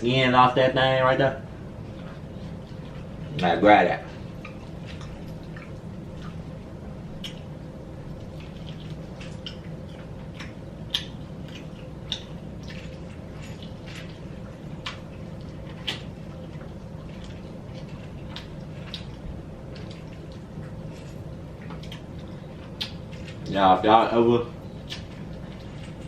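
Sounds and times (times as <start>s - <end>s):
low hum: 0.0s - 26.0s
chewing and mouth smacks: 4.1s - 23.6s, 24.5s - 26.0s.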